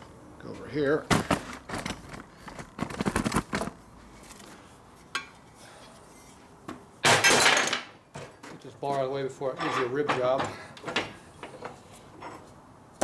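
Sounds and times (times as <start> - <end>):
metal tools clinking: 9.6 - 10.4.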